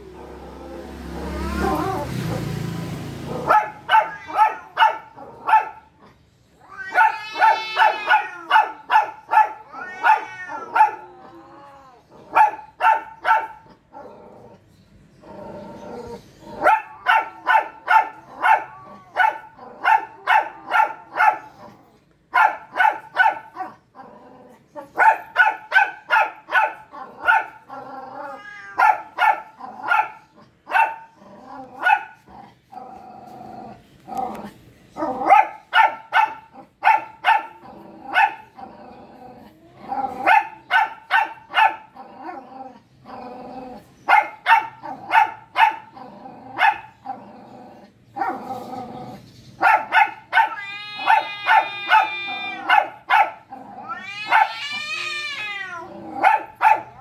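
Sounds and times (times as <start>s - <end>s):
dog high drawn-out cry: 1.1s - 2.4s, 3.5s - 5.7s, 6.6s - 11.2s, 28.2s - 31.0s, 49.6s - 57.0s
dog barking: 3.2s - 6.0s, 6.8s - 11.1s, 12.2s - 13.8s, 16.6s - 23.8s, 24.8s - 27.7s, 28.7s - 32.3s, 35.0s - 38.6s, 40.2s - 42.0s, 44.1s - 47.0s, 49.6s - 54.7s, 56.1s - 57.0s.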